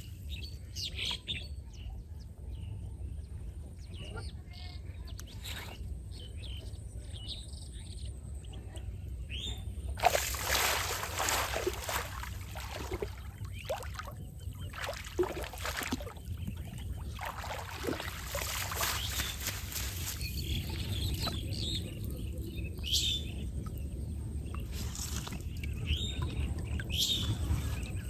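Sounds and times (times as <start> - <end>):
faint bird chirps: 4.0 - 28.0
water splashing and sloshing: 9.9 - 28.0.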